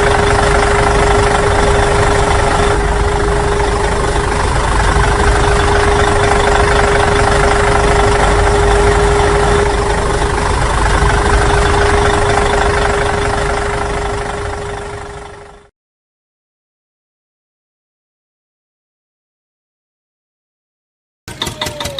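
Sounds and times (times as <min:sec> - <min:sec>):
engine running steadily: 0:00.0 - 0:15.7, 0:21.3 - 0:21.9.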